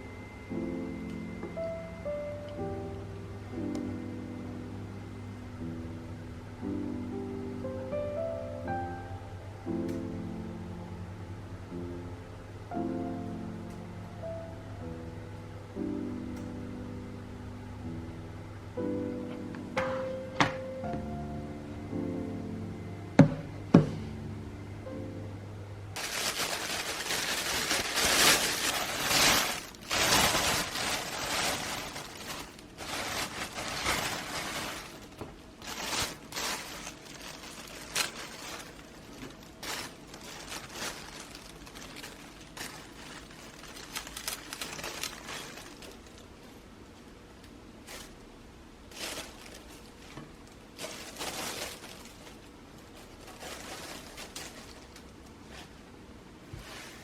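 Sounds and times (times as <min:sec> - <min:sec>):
kitchen items clinking: 0:26.0 - 0:46.1
rustling: 0:26.0 - 0:46.6, 0:48.9 - 0:55.8, 0:56.4 - 0:57.0.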